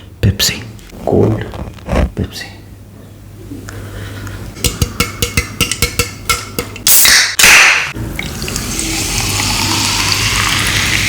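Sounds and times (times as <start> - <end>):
soda pouring fizz: 8.2 - 11.0.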